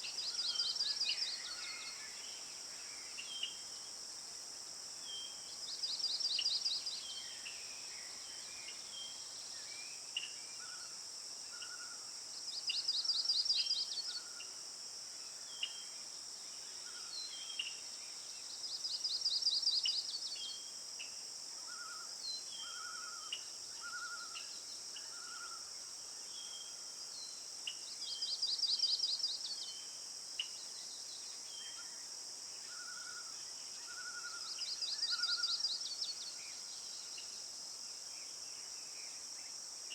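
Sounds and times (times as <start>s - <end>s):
high insect drone: 22.6s - 28.6s.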